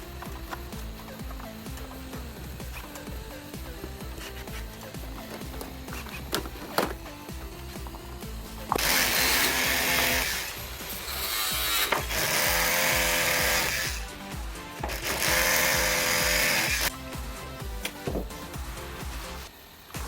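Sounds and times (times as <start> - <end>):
power tool running: 0.0 - 18.9
background music with beat: 0.0 - 20.0.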